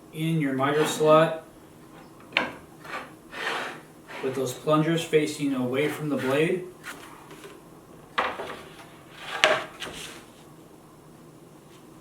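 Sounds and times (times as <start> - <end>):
metal bar sliding: 0.6 - 1.2, 2.8 - 4.6
metal bar scraping: 0.6 - 1.3, 2.8 - 4.5.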